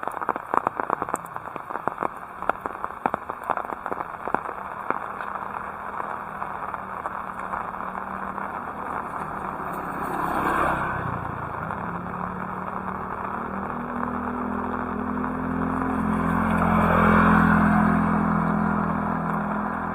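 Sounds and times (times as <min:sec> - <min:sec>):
heavy rain: 0:00.0 - 0:19.9
low engine hum: 0:00.0 - 0:19.9
vehicle passing on wet road: 0:00.0 - 0:19.9.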